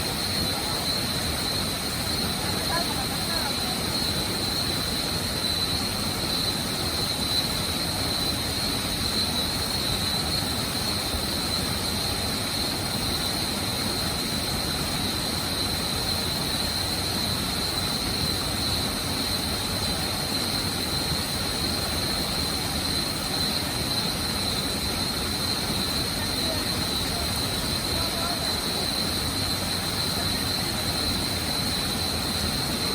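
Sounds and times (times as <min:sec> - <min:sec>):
waterfall roaring: 0:13.4 - 0:32.9.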